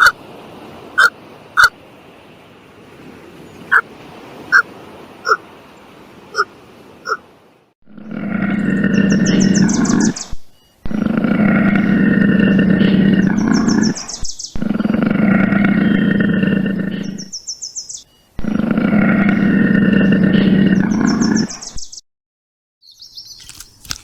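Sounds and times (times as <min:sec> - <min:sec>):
large animal roaring: 0:07.9 - 0:10.1, 0:10.8 - 0:14.0, 0:14.6 - 0:17.2, 0:18.4 - 0:21.5.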